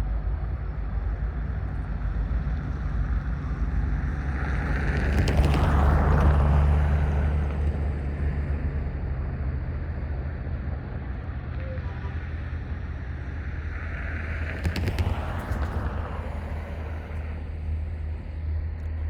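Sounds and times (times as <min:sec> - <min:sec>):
diesel locomotive droning: 0:00.0 - 0:19.0.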